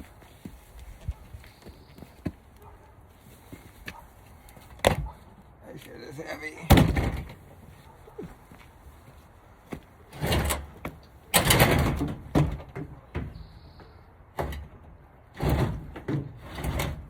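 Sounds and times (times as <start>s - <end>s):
washing machine scraping slide: 15.4s - 17.0s.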